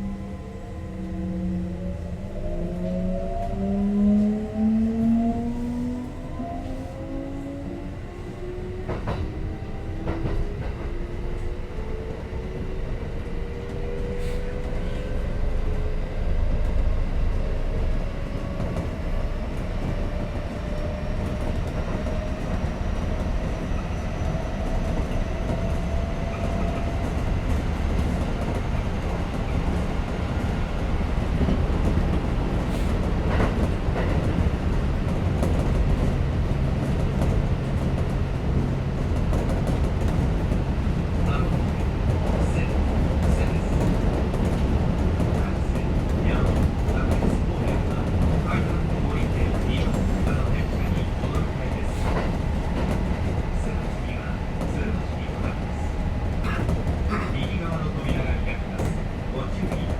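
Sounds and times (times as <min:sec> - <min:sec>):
wheels rumbling on track: 0:00.0 - 0:59.9
rail clicks: 0:24.6 - 0:59.9.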